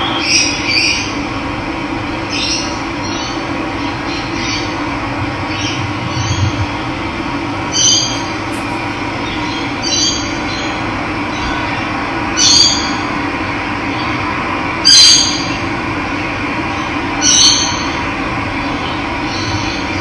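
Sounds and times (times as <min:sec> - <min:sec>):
bird harsh call: 0:07.6 - 0:10.1.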